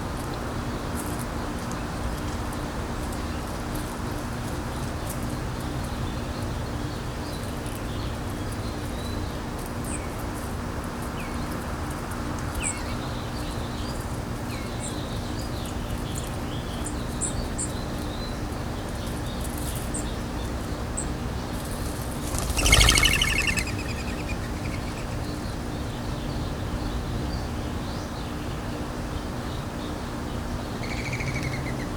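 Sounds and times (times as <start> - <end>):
small birds chirping: 19.2 - 25.4
wind rumbling on microphone: 21.7 - 24.5.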